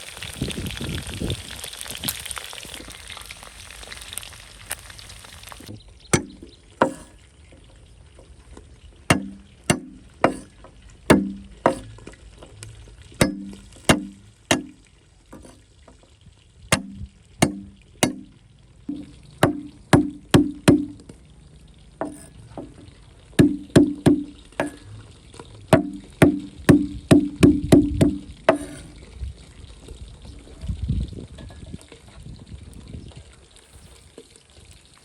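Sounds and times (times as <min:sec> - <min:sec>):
knife chopping on wooden board: 0:06.2 - 0:07.1, 0:09.1 - 0:10.5, 0:11.1 - 0:11.9, 0:13.2 - 0:14.7, 0:16.8 - 0:18.3, 0:18.9 - 0:20.9, 0:22.0 - 0:22.3, 0:25.8 - 0:28.8.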